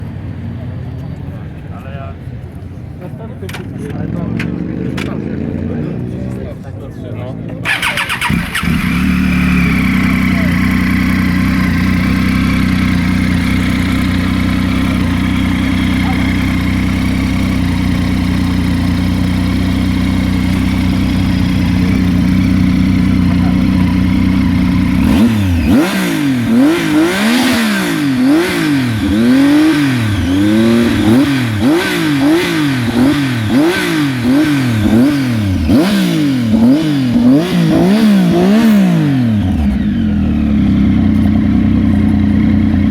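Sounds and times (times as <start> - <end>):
motorcycle engine idling and revving: 0.0 - 42.9.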